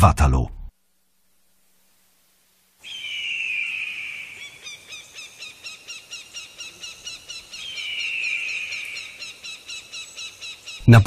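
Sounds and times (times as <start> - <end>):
faint outdoor hiss: 0.0 - 11.0
bird calling: 2.8 - 11.0.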